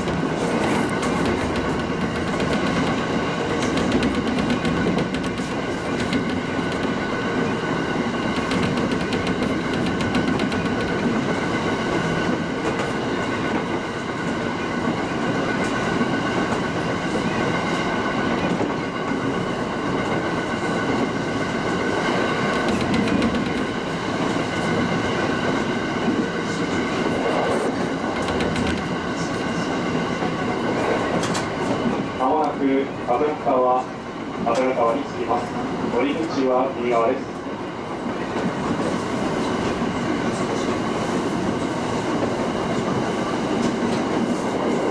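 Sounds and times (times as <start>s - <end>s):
wheels clacking over rail joints: 0.0s - 32.1s
electric train running rumble: 0.0s - 44.9s.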